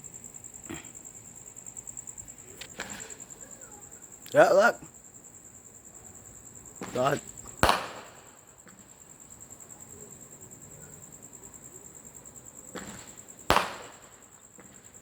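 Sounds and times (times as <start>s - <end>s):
firework bangs echoing: 6.8s - 8.8s, 12.7s - 15.0s.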